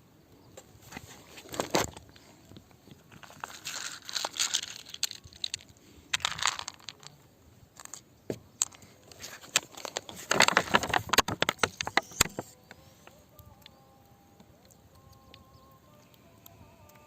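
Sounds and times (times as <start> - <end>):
rock crunching and cracking: 0.6 - 12.8.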